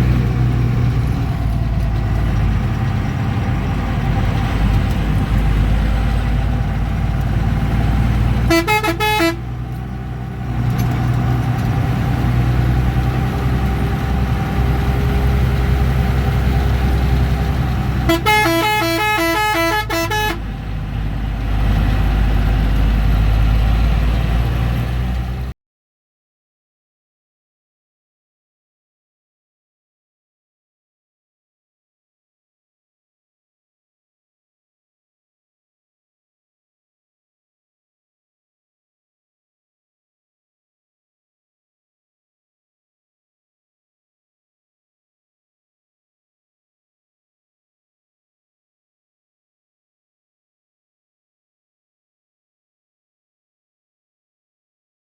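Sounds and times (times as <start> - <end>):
bus engine droning: 0.0 - 25.6
horn pulsing notes: 8.5 - 9.5, 18.1 - 20.5.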